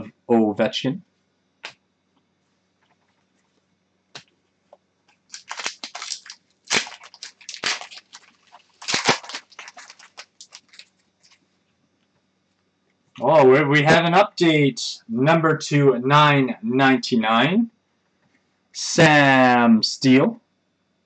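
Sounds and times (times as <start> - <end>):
cards and wrapper crinkling: 5.3 - 11.4.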